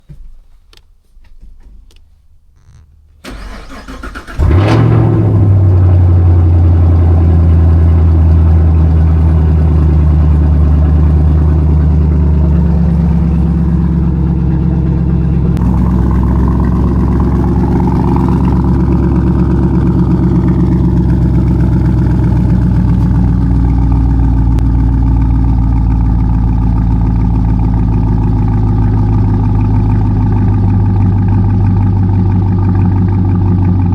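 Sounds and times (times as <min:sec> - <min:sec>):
engine starter cranking: 0:02.6 - 0:05.4
engine revving and idling: 0:02.7 - 0:33.9.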